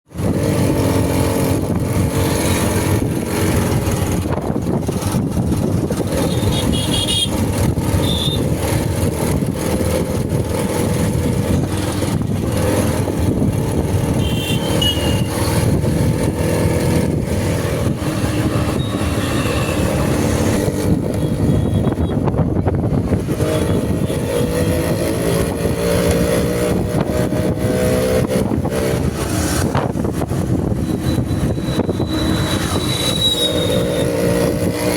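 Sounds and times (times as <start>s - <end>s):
vehicle engine rumbling: 0.1s - 34.9s.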